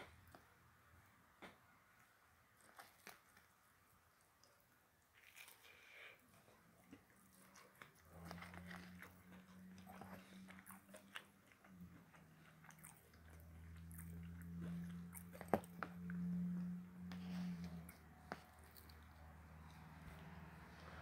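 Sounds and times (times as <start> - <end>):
chewing and crunching food: 1.4 - 21.0
low hum: 13.3 - 21.0.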